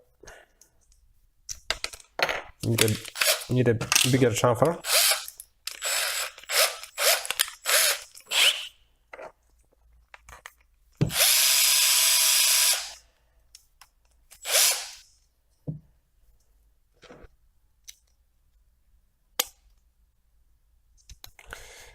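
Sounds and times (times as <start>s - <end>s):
power drill cutting plastic: 4.8s - 8.7s, 11.1s - 13.0s, 14.4s - 15.0s.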